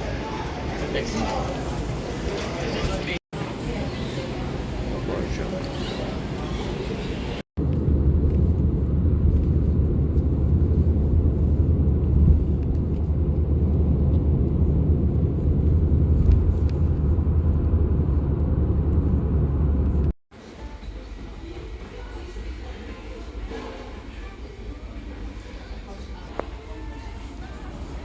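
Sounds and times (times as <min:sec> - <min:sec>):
vehicle rumbling in motion: 0:07.3 - 0:20.2.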